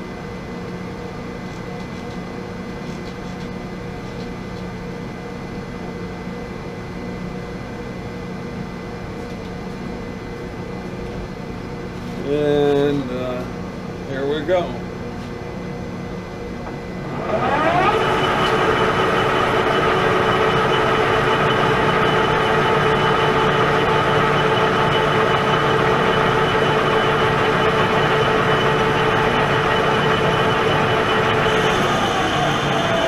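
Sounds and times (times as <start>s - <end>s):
metal lathe running with gear whine: 17.0s - 33.0s
lathe cutting steel bar: 17.2s - 33.0s.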